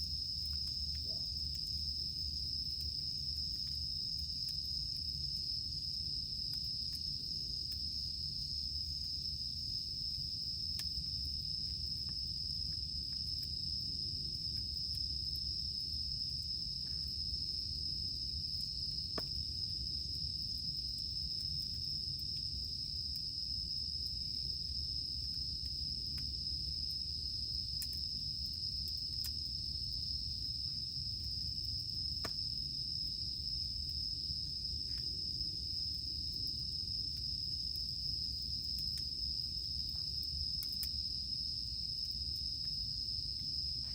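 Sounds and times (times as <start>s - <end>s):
cicadas droning: 0.0s - 43.9s
campfire crackling and popping: 0.1s - 16.1s, 18.5s - 23.4s, 33.9s - 40.8s.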